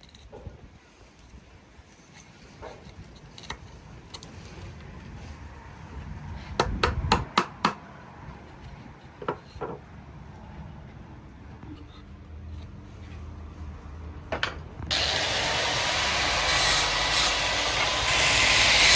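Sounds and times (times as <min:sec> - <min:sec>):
hammer striking wood: 0:06.6 - 0:07.8.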